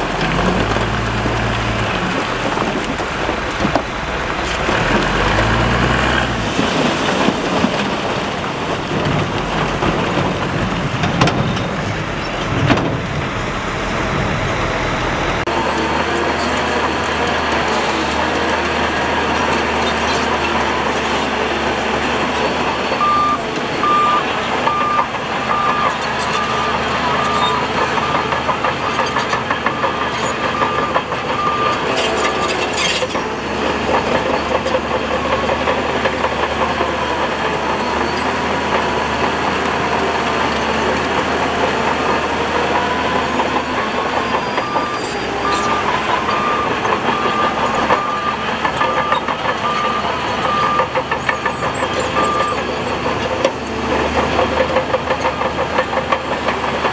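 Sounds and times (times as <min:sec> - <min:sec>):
heavy machinery diesel engines: 0:00.0 - 0:56.9
reversing alarm beeping: 0:22.7 - 0:32.5, 0:41.8 - 0:53.5.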